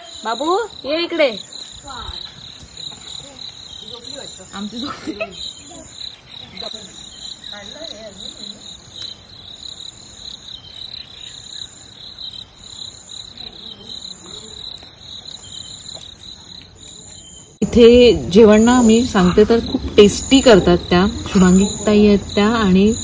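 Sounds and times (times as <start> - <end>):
crickets chirping: 0.0 - 23.0
faint voices: 13.2 - 15.0.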